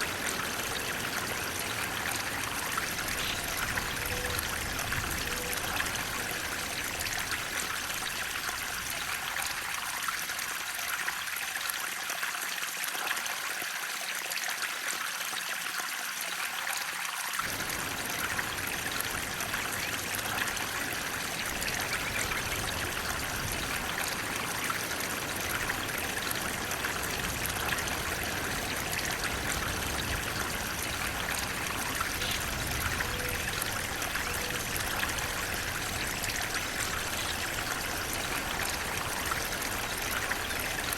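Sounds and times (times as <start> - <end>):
flowing water splashing: 0.0 - 40.9.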